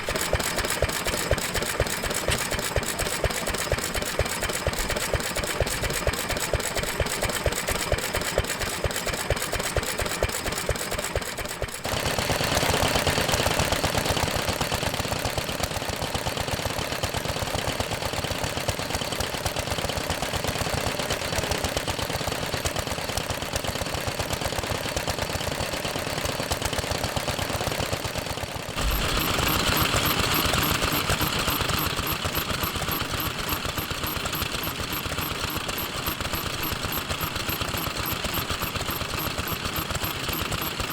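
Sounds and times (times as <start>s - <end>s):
stationary engine running: 0.0s - 13.8s, 28.8s - 40.9s.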